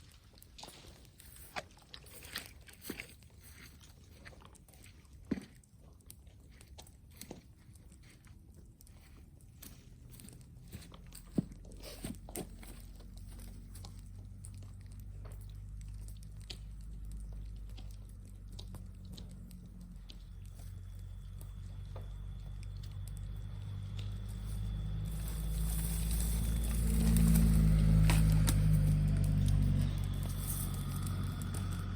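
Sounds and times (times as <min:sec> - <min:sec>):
low droning hum: 0:09.3 - 0:31.9
sharp crackles and snaps: 0:12.3 - 0:31.9.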